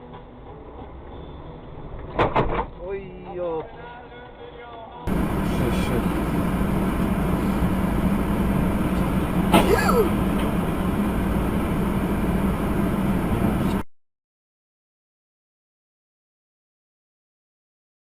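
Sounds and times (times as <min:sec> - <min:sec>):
vehicle road and engine drone: 0:05.1 - 0:13.9.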